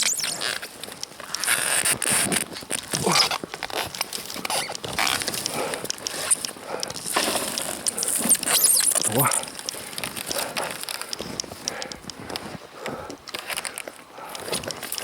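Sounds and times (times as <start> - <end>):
crunching and scraping in snow: 7.0 - 11.2.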